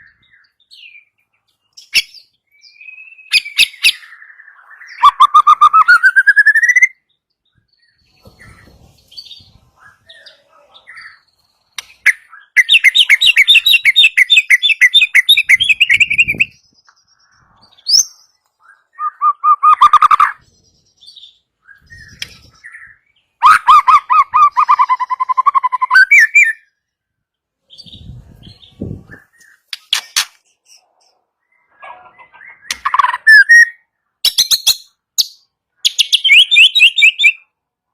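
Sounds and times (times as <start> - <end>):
bird singing rattling trills: 0.0 - 26.9
faint bird calls: 30.8 - 33.9.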